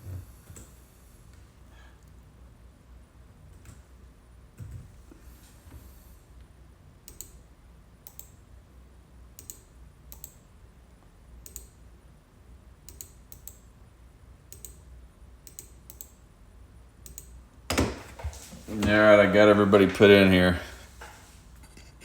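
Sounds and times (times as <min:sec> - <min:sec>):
computer mouse clicks: 0:07.1 - 0:07.4, 0:08.0 - 0:08.4, 0:09.4 - 0:10.4, 0:11.4 - 0:11.8, 0:12.9 - 0:13.7, 0:14.5 - 0:16.2, 0:17.0 - 0:17.4.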